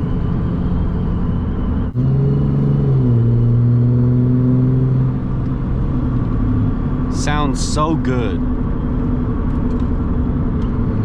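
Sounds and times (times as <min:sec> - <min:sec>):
diesel truck engine droning: 0:00.0 - 0:11.0.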